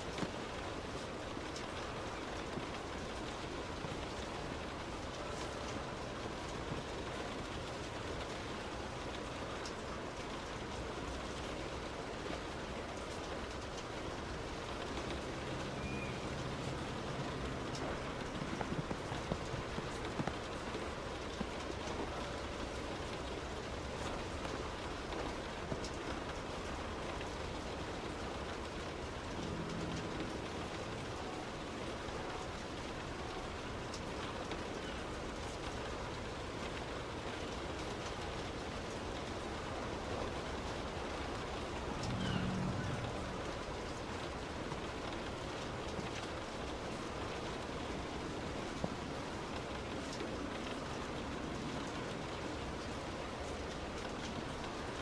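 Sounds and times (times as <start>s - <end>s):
raindrops ticking: 0.0s - 55.0s
tyres hissing on wet road: 0.0s - 55.0s
low hum: 26.6s - 32.6s, 41.0s - 45.6s.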